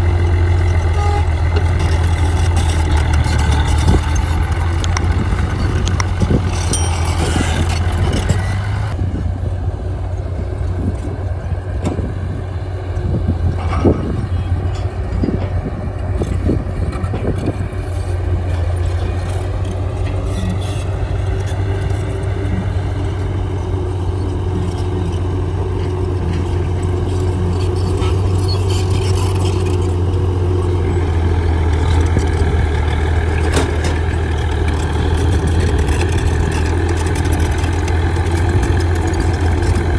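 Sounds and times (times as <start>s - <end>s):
diesel machinery engine drone: 0.0s - 39.9s
metallic clanks and knocks: 0.4s - 8.8s, 31.7s - 39.9s.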